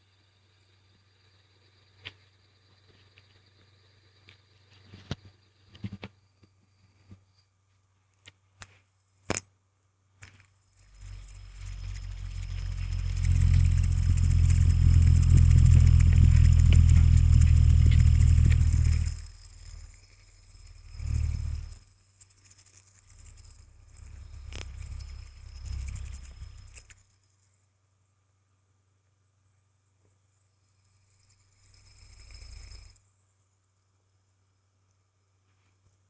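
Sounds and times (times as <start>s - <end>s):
metal hand spinner whirring: 10.3s - 27.5s, 30.5s - 33.0s.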